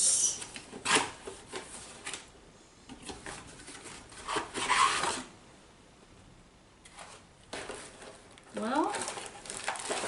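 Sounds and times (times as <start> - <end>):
packaging rubbing and scraping: 3.2 - 5.3, 6.9 - 10.0.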